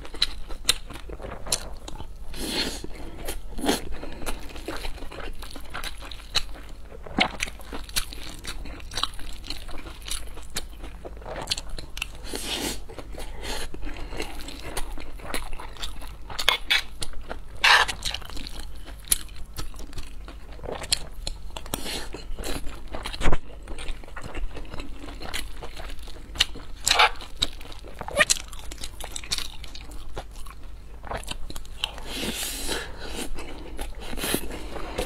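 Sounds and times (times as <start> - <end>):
chewing with wet mouth clicks: 2.8 - 12.2, 12.9 - 32.0.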